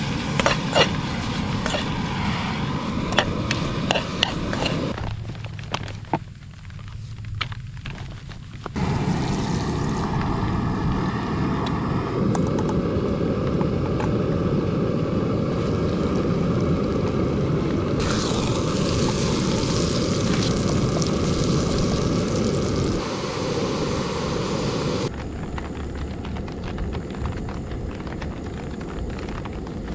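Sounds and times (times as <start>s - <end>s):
low rushing roar: 0.0s - 5.0s, 8.8s - 26.0s
hiss with crackles: 0.0s - 12.2s, 15.2s - 29.9s.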